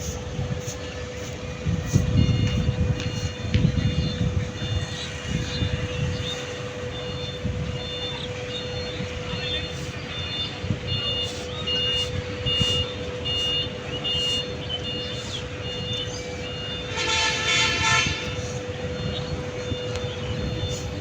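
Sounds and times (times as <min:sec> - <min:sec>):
reversing alarm beeping: 0:00.0 - 0:21.0
truck engines rumbling: 0:00.0 - 0:21.0
vehicle horn toot: 0:09.6 - 0:20.9.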